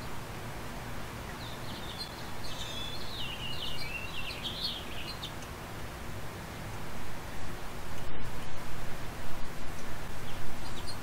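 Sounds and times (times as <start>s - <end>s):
outdoor background noise: 0.0s - 11.0s
songbird twittering: 1.3s - 5.4s, 10.2s - 11.0s.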